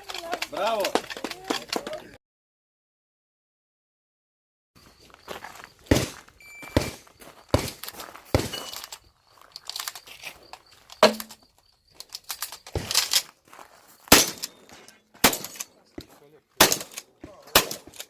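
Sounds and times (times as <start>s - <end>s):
handling and movement noise: 0.0s - 2.1s, 4.9s - 18.0s
shotgun shots: 14.1s - 14.6s, 15.2s - 15.7s, 16.6s - 18.0s.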